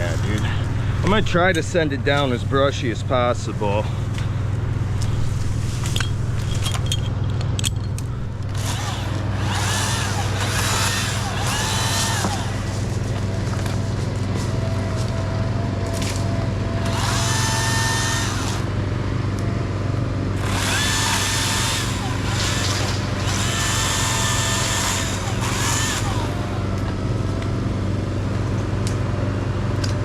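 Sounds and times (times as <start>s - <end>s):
steady low hum: 0.0s - 30.0s
chainsaw cutting: 8.4s - 15.2s, 16.8s - 18.8s, 20.4s - 27.2s.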